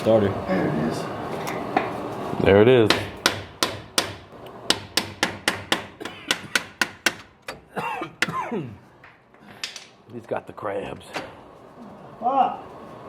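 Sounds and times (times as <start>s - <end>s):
hammer tapping on metal: 2.8s - 7.6s.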